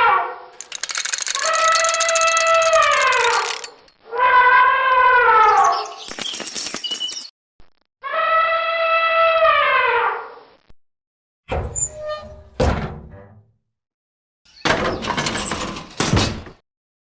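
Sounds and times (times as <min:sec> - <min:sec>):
ratchet-like mechanical clicking: 0:00.6 - 0:03.9.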